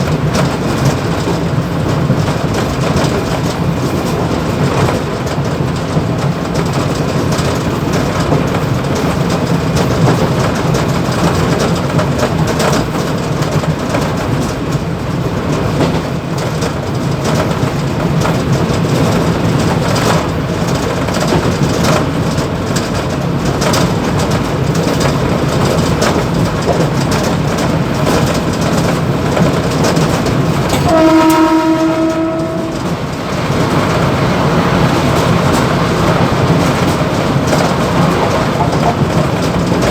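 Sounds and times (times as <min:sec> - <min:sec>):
train rumbling and rattling: 0:00.0 - 0:39.9
wheel clicks over rail joints: 0:00.0 - 0:39.9
train horn: 0:30.7 - 0:33.2.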